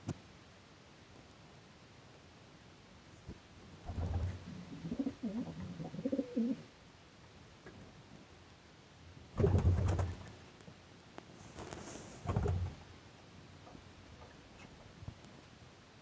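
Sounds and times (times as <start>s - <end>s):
pigeon cooing: 3.9s - 6.7s.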